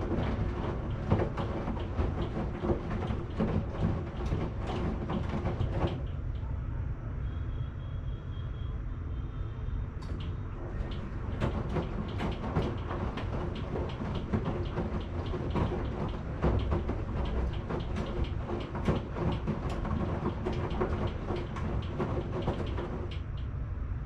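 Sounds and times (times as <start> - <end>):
load clattering in drum: 0.0 - 6.2, 10.7 - 23.3
washing machine drum rumbling: 0.0 - 6.5, 10.0 - 23.6.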